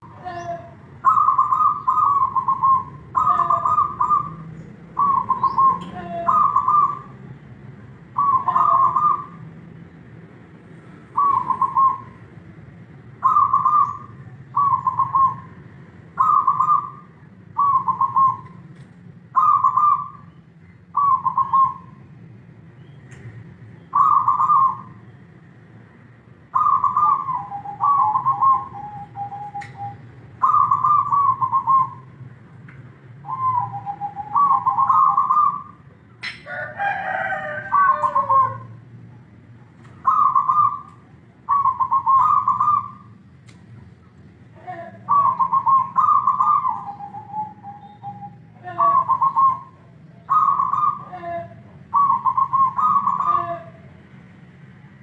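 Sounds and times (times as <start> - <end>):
dove cooing: 0.0 - 7.3, 8.0 - 9.6, 11.1 - 12.3, 13.2 - 18.7, 19.3 - 22.0, 23.9 - 25.0, 26.5 - 32.1, 33.2 - 38.9, 39.9 - 43.2, 44.5 - 54.0.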